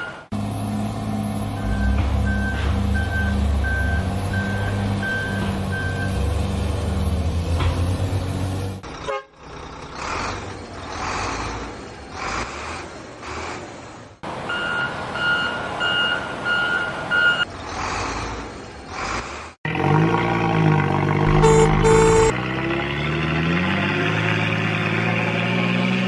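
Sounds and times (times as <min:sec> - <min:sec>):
truck engine hum: 0:00.0 - 0:26.0
reversing alarm beeping: 0:01.5 - 0:06.3, 0:21.3 - 0:22.4
rhythmic engine noise: 0:21.2 - 0:22.4.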